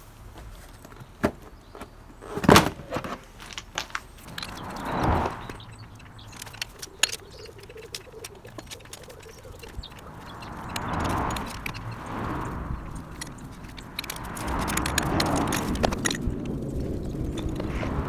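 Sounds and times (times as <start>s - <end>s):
metal tools clinking: 3.5s - 18.0s
passing vehicle whoosh: 4.2s - 7.0s, 9.5s - 18.0s.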